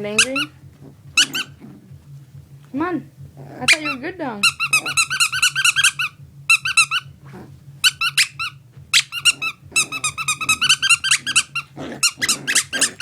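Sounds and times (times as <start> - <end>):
puppy chewing toy: 0.0 - 2.6, 3.2 - 13.0
squeaky toy squeaking: 0.1 - 0.6, 1.2 - 1.6, 3.7 - 7.1, 7.8 - 13.0.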